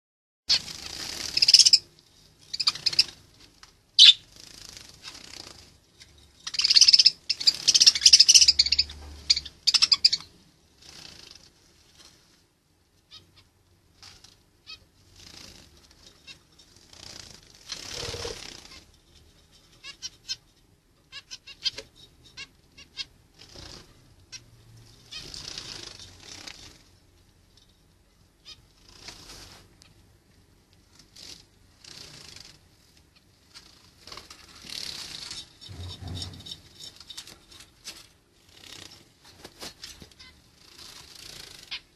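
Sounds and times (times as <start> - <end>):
harsh bird calls: 4.0 - 4.3, 6.4 - 10.3
wing flapping: 16.8 - 18.9.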